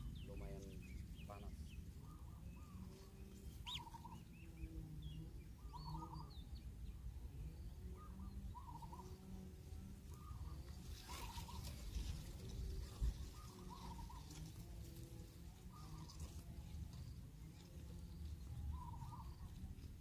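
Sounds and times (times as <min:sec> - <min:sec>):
high bird chirps: 0:00.0 - 0:04.3
bird wavering call: 0:02.0 - 0:04.6, 0:05.5 - 0:06.5, 0:07.8 - 0:14.6, 0:15.5 - 0:16.4, 0:18.6 - 0:19.5.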